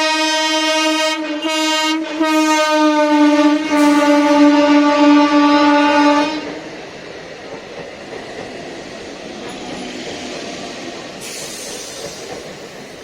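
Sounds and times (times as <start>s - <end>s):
train wheels rattling on rails: 3.7s - 13.0s
loud hiss: 10.0s - 13.0s.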